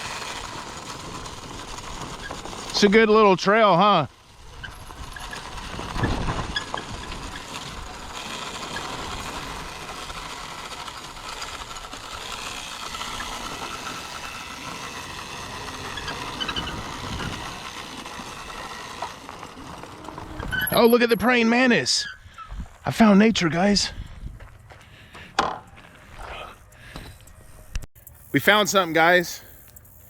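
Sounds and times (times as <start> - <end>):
dirt bikes riding: 0.0 - 30.0
wind rumble on microphone: 22.2 - 22.9, 23.8 - 24.6.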